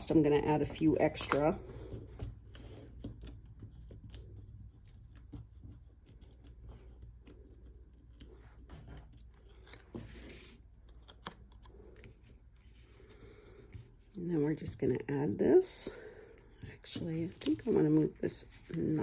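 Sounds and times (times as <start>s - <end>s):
cardstock rustling: 16.4s - 19.0s.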